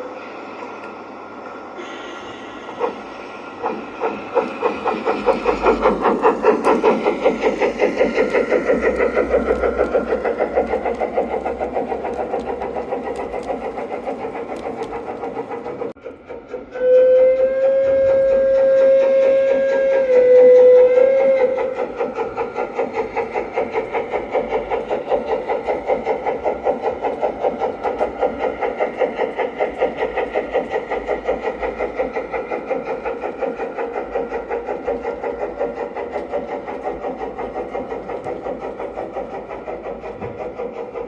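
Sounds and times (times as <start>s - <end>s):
model steam locomotive chuffing: 0.0s - 41.0s.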